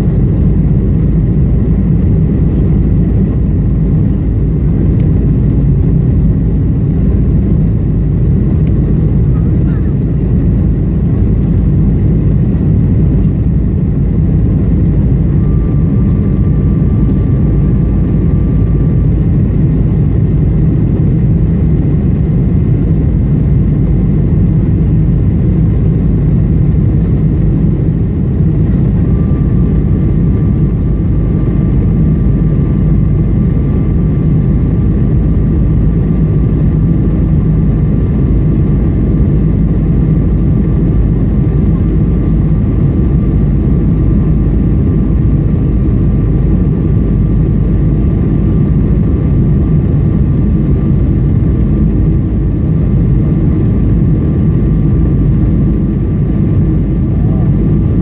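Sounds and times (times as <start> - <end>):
airplane engines rumbling in cabin: 0.0 - 58.0
faint thin whine: 12.6 - 20.0, 28.4 - 35.4.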